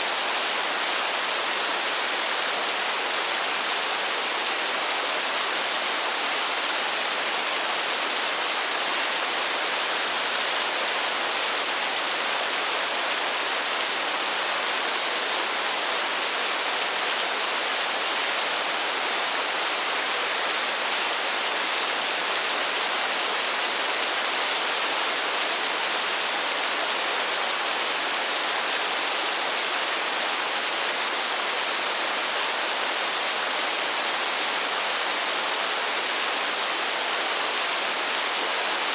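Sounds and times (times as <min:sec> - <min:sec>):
rain falling on forest: 0:00.0 - 0:38.9.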